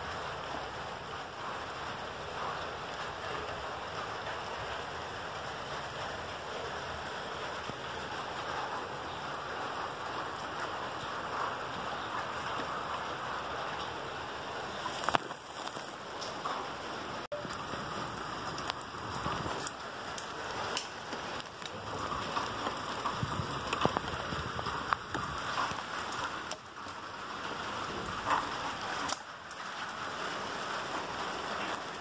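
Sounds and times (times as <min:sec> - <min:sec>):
rain pattering: 0:00.0 - 0:32.0.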